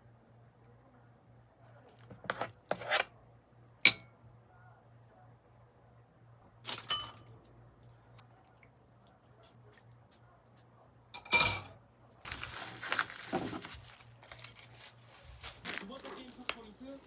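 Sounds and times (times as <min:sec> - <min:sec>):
glassware clinking: 0:03.9 - 0:04.1, 0:06.7 - 0:07.3, 0:11.2 - 0:11.8
dishes clattering: 0:11.2 - 0:11.8.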